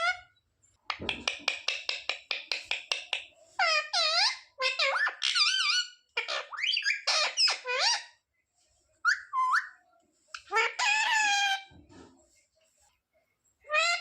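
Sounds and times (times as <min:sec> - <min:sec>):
parrot squawking: 0:00.0 - 0:00.3, 0:03.6 - 0:08.2, 0:09.0 - 0:11.7, 0:13.7 - 0:14.0.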